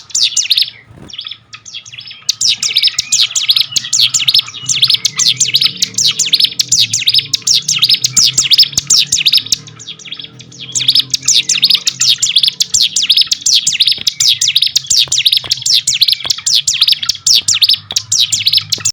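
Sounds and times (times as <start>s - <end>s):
bird chirping fast: 0.0s - 18.9s.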